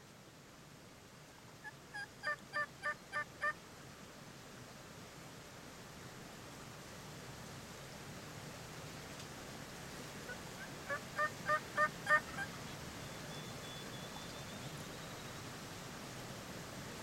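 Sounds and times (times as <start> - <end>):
steady outdoor hiss: 0.0 - 17.0
wild turkey yelping: 1.9 - 3.5, 10.6 - 12.6.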